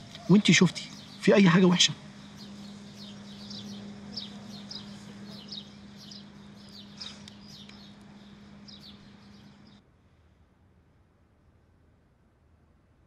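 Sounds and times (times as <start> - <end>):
small birds chirping: 0.0 - 9.8
steady low hum: 0.0 - 13.0.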